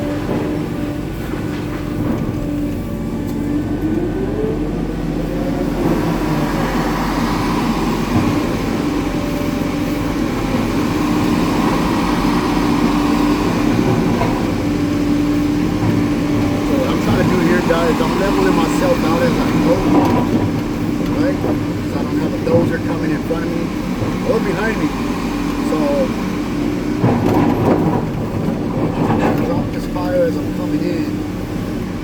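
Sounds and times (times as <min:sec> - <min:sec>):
rising hydraulic whine: 0:00.0 - 0:20.4
excavator engine and hydraulics: 0:00.0 - 0:32.0.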